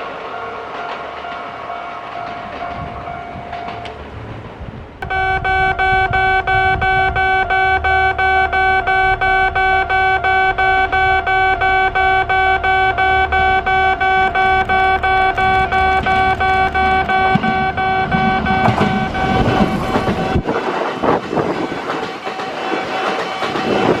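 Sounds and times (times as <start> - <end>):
train passing: 0.0 - 24.0
level crossing alarm dinging: 0.4 - 4.0, 5.0 - 20.6.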